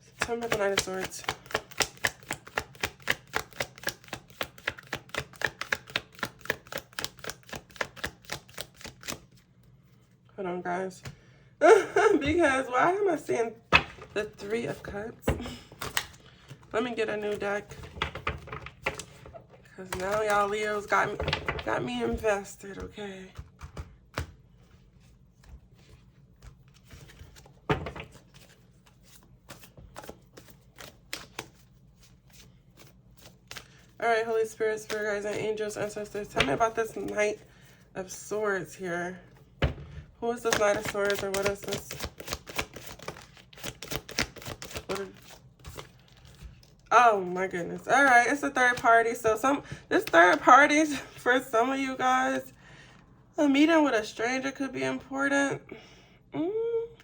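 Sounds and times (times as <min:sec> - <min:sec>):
cards being shuffled: 0:00.2 - 0:10.0, 0:13.6 - 0:22.4, 0:23.3 - 0:37.7, 0:40.3 - 0:46.9.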